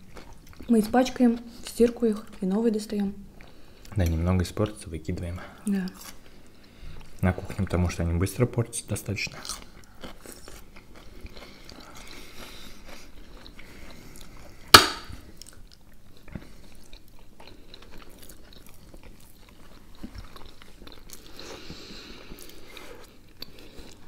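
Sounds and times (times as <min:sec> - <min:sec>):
soft chewing: 0:00.0 - 0:08.1, 0:09.1 - 0:24.0.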